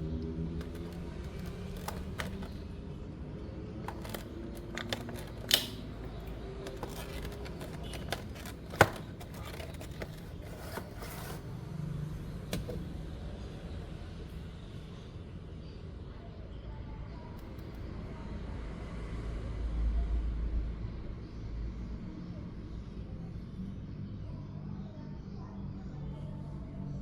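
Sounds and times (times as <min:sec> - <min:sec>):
charging case clicking: 0:00.6 - 0:02.6, 0:03.8 - 0:10.9
plastic packaging clicks and taps: 0:00.6 - 0:02.6, 0:03.8 - 0:10.5, 0:12.5 - 0:12.8.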